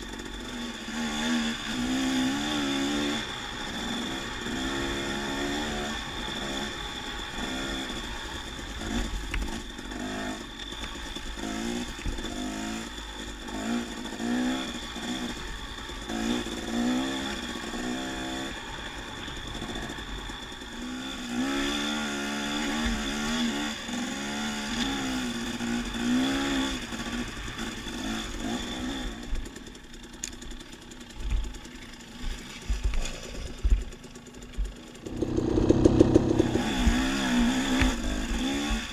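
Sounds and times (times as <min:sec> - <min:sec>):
dirt bike engine: 0:00.0 - 0:38.9.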